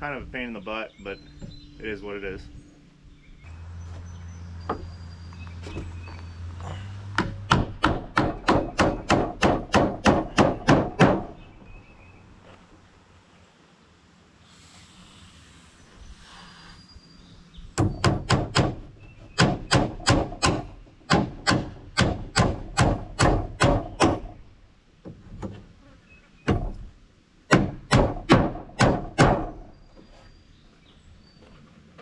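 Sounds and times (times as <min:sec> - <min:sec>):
hammer driving nails into wood: 0:07.2 - 0:11.3, 0:17.8 - 0:18.8, 0:19.4 - 0:24.4, 0:27.5 - 0:29.6.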